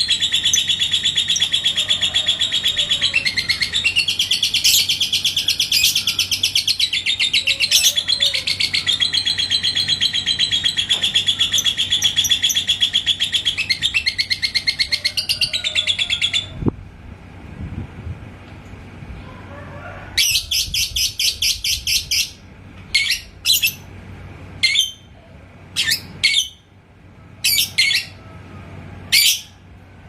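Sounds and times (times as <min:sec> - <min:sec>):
lovebird chirping chatter: 0:00.0 - 0:16.5, 0:20.2 - 0:23.9, 0:25.7 - 0:26.6, 0:27.4 - 0:28.2.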